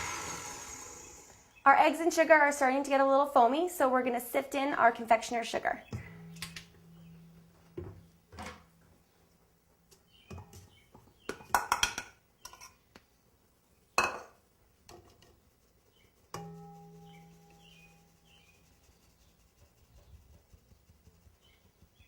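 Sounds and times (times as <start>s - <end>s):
stand mixer hum: 0.0s - 1.3s
sifter clinking against bowl: 16.3s - 18.9s.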